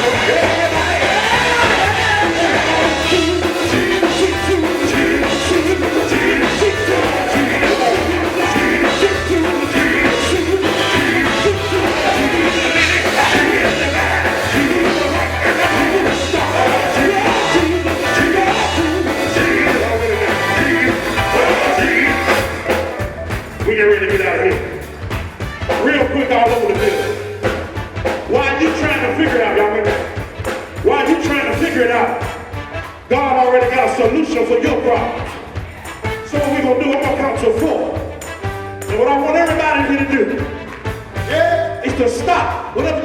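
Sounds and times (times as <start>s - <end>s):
people singing: 0.0s - 23.2s
gospel band music: 0.0s - 43.0s
pulsing bass line: 0.0s - 43.0s.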